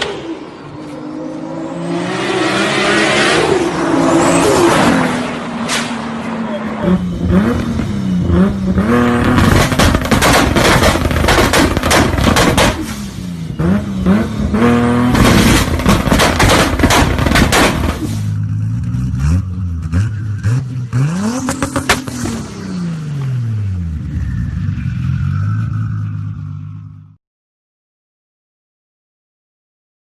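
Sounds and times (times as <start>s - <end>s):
car engine revving: 0.0s - 27.1s
exhaust crackling bangs: 9.0s - 13.2s, 15.0s - 18.3s.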